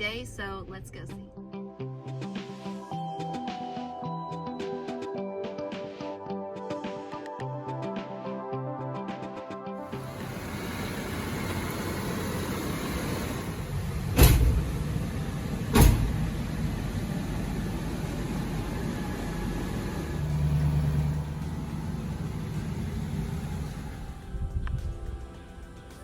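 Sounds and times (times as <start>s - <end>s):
car doors shutting: 9.9s - 24.2s
vehicle engine rumbling: 9.9s - 25.9s.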